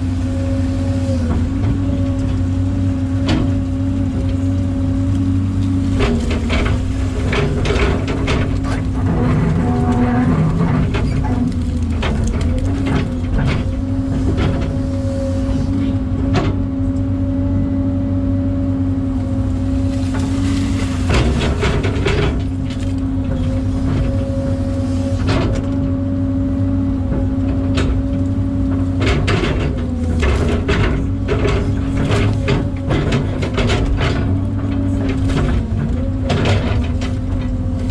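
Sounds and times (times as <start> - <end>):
excavator diesel engine running: 0.0 - 37.9
knocks and clanks: 5.9 - 14.9, 20.1 - 24.4, 27.1 - 37.9.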